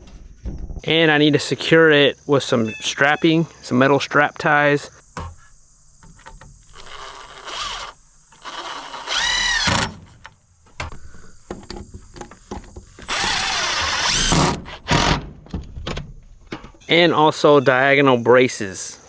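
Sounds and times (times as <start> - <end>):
cordless drill driving screws: 6.7 - 10.0, 13.0 - 15.2.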